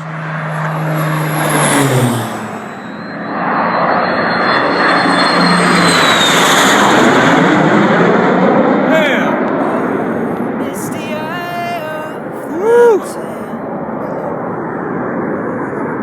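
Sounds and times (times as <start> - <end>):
aircraft flying low past: 0.0 - 10.6, 13.6 - 16.0
high engine whine: 0.0 - 16.0.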